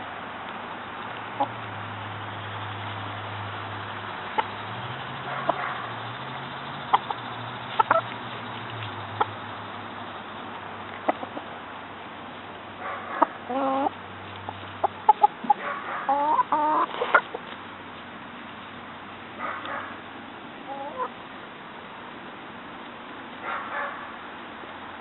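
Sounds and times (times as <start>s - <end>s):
chickens clucking: 1.3s - 1.6s, 4.1s - 9.5s, 10.9s - 11.6s, 13.1s - 17.7s, 20.6s - 21.2s.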